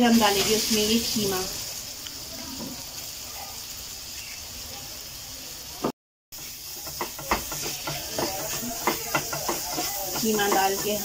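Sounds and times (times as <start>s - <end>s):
meat sizzling in a frying pan: 0.0s - 11.0s
spatula scraping and tapping pan: 6.4s - 11.0s.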